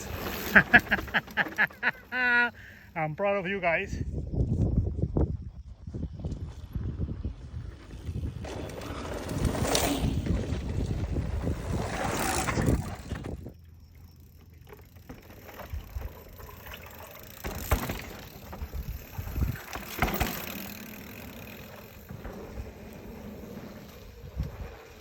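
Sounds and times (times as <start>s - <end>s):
bike tyre noise on dirt: 0.0s - 25.0s
wind noise: 3.9s - 13.6s, 17.6s - 20.2s, 22.1s - 25.0s
bike knocks and rattles: 7.9s - 24.7s.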